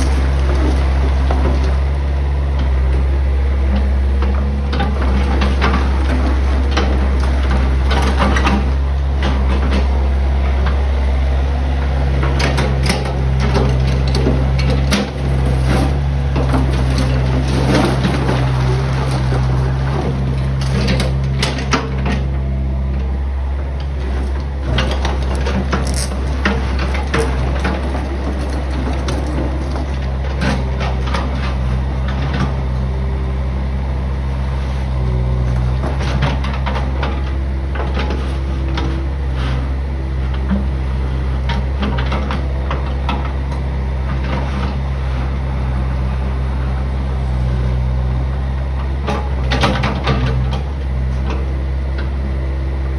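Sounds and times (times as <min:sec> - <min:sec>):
bucket scraping crushed stone: 0:00.0 - 0:01.0, 0:24.9 - 0:30.0
diesel engine humming: 0:00.0 - 0:52.9
rock clattering on steel: 0:25.2 - 0:29.6.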